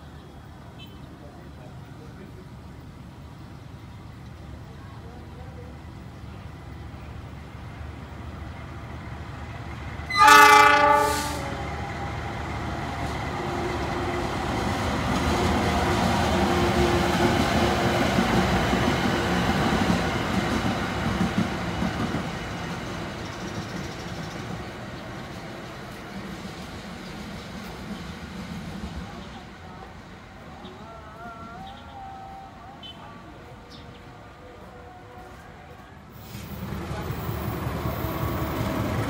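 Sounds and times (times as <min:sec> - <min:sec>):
diesel locomotive passing: 0:00.0 - 0:39.0
locomotive horn blast: 0:10.1 - 0:11.8.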